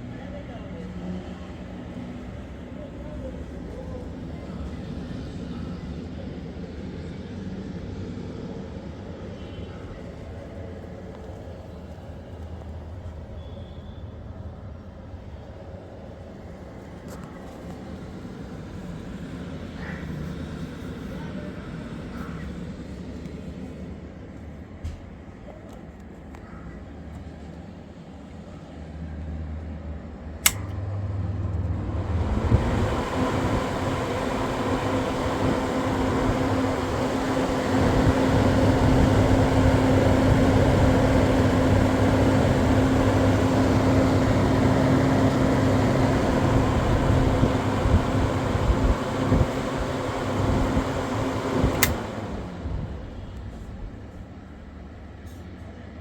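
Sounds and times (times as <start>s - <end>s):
fan motor hum and rushing air: 0.0s - 26.4s, 27.0s - 56.0s
fan switch click: 30.4s - 30.9s, 32.4s - 53.5s.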